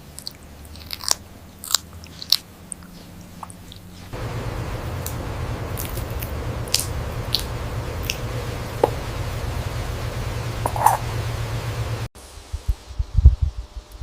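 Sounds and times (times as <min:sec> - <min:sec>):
parrot chewing and biting: 0:00.0 - 0:09.3
crisp crunches: 0:00.2 - 0:04.1
steady low rumble: 0:02.6 - 0:14.0.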